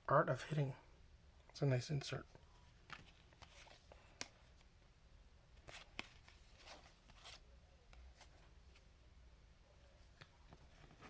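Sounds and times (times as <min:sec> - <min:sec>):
cards sliding and flipping: 0:02.8 - 0:04.7, 0:05.6 - 0:08.8.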